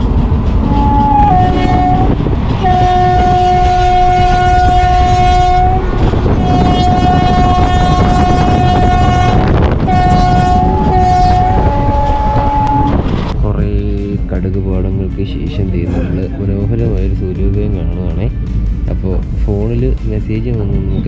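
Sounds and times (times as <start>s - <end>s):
moving train rumble: 0.0s - 21.0s
train horn blasts: 0.6s - 13.1s.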